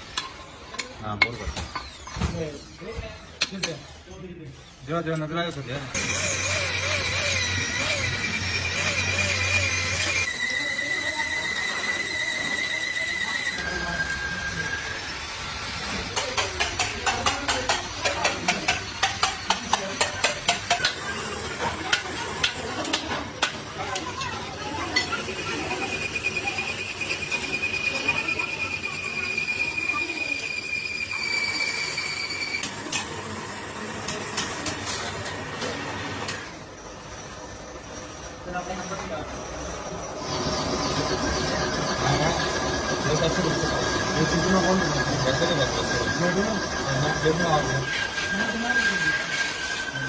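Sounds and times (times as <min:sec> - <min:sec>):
machine high whine: 0:05.8 - 0:50.0
sharp metallic clicks and knocks: 0:16.2 - 0:21.0.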